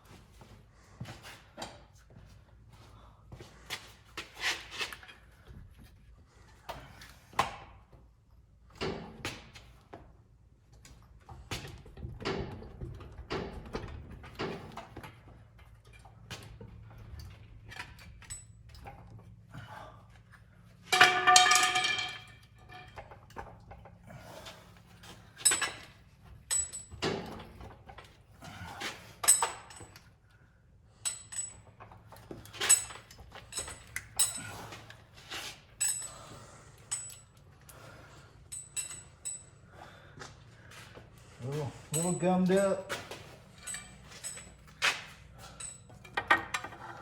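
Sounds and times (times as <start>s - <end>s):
wrenches and metal parts clinking: 11.6s - 30.2s, 30.9s - 39.8s, 41.4s - 47.0s.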